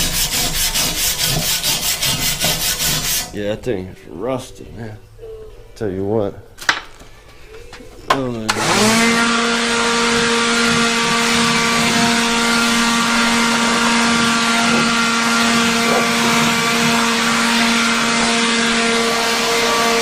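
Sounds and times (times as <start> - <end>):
angle grinder whine: 8.5 - 20.0.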